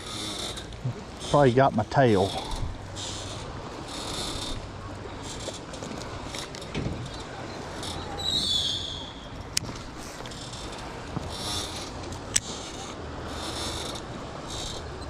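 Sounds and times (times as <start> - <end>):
fishing reel cranking: 0.0 - 4.6, 10.3 - 14.9
high squeal: 7.1 - 9.4.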